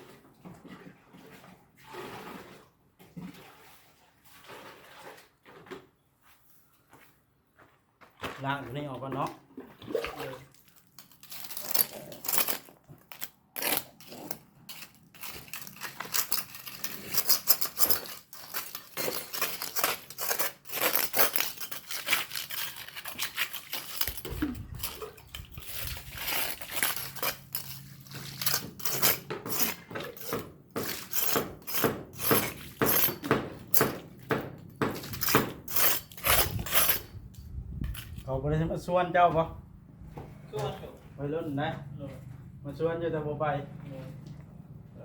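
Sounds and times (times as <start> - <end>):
metal tool scraping and clinking: 10.8 - 38.2.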